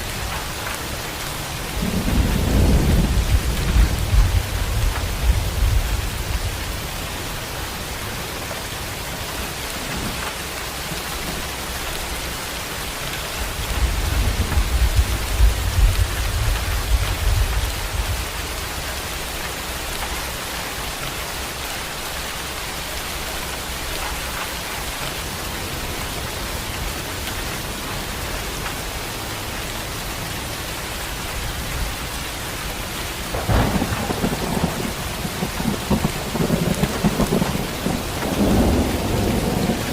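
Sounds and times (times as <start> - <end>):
heavy rain: 0.0 - 39.9
rolling thunder: 1.7 - 7.0, 13.3 - 18.8, 33.2 - 39.9.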